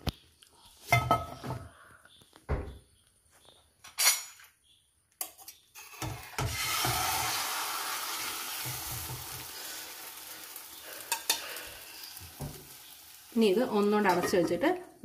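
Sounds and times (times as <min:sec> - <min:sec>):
omelette sizzling in frying pan: 0:05.8 - 0:14.2.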